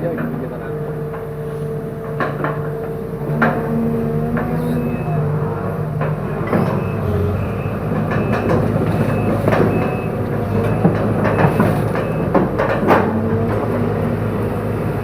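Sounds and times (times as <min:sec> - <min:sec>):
excavator diesel engine: 0:00.0 - 0:15.0.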